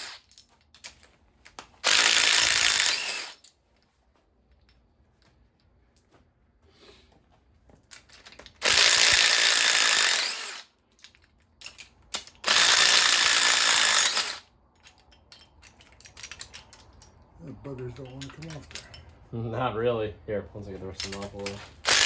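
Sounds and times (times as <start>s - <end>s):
power wrench running: 0.0s - 0.3s, 1.8s - 3.4s, 8.4s - 10.7s, 11.7s - 14.5s, 21.1s - 22.0s
metallic clinks of tools: 7.9s - 19.2s.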